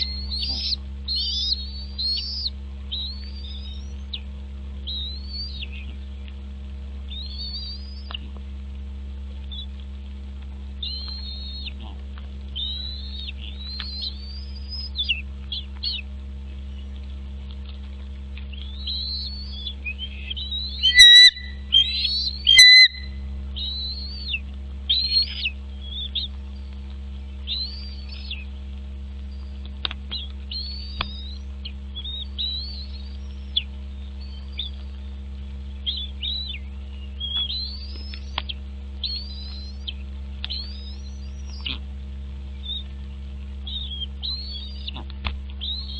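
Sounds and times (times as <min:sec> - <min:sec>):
bird chirping: 0:00.0 - 0:04.2, 0:04.8 - 0:06.1, 0:07.1 - 0:08.2, 0:10.8 - 0:11.8, 0:12.6 - 0:16.0, 0:18.5 - 0:26.3, 0:27.2 - 0:28.5, 0:30.1 - 0:41.8, 0:42.5 - 0:45.0, 0:45.6 - 0:45.9
steady low hum: 0:00.0 - 0:45.9.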